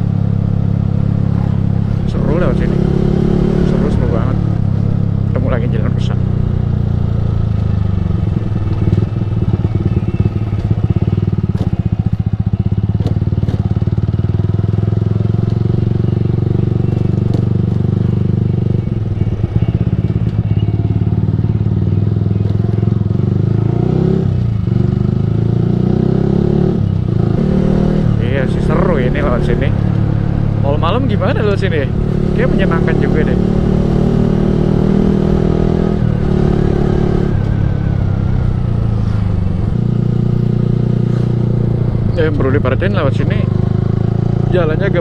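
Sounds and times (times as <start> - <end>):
motorcycle engine cruising: 0.0 - 45.0.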